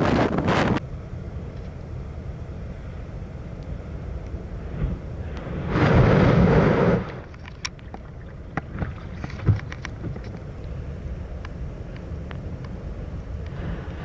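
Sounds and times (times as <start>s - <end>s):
wind rumbling on microphone: 0.0s - 14.0s
wave crashing: 4.5s - 10.2s.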